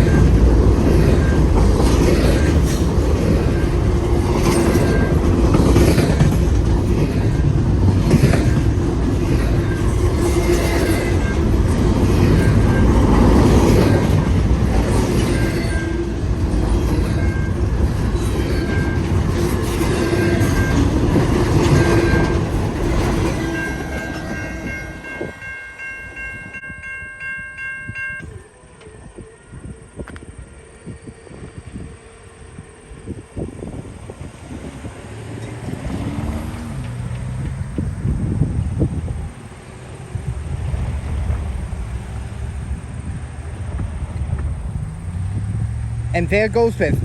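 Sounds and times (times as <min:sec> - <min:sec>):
wheels clacking over rail joints: 0:00.0 - 0:26.3, 0:33.8 - 0:46.1
freight train rumbling past: 0:00.0 - 0:47.0
high pulsing ringing: 0:14.2 - 0:34.1.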